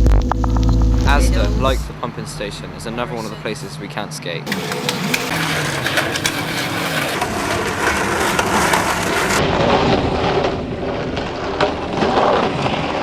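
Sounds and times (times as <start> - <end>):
skateboard wheels rolling on pavement: 4.4 - 13.0
skateboard clacks: 4.5 - 13.0.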